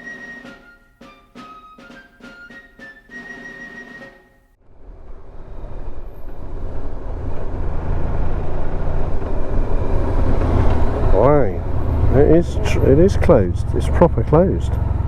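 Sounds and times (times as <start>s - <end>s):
motorcycle engine running: 8.8s - 15.0s.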